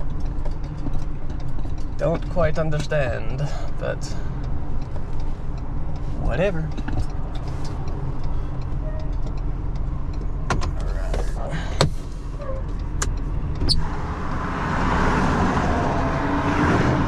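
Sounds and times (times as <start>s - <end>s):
sharp clicks and knocks: 0.0s - 3.2s, 4.4s - 13.8s
vehicle engine idling: 0.0s - 14.5s
passing freeway traffic: 0.0s - 17.0s.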